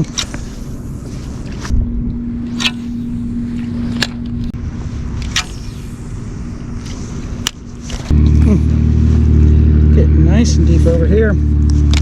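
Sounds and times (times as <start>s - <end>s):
electric motor humming: 0.0s - 12.0s
wind rumble on microphone: 0.0s - 12.0s.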